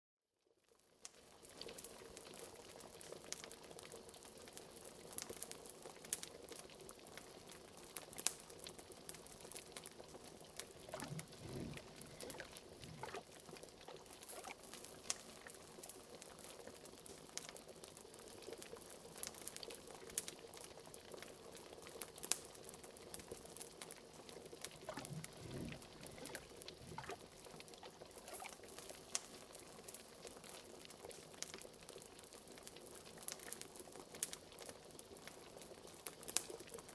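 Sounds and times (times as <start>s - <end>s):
wood fire crackling: 10.7s - 13.2s, 24.6s - 27.5s
pot of liquid bubbling: 10.7s - 16.9s, 24.3s - 29.5s.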